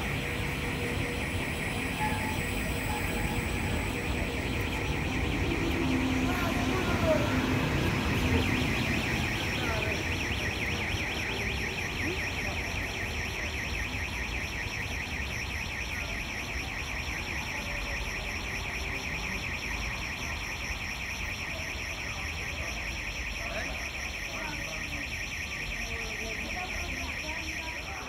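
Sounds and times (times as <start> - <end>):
passenger train rumble: 0.0 - 12.0
high-pitched pulsing: 0.0 - 13.7.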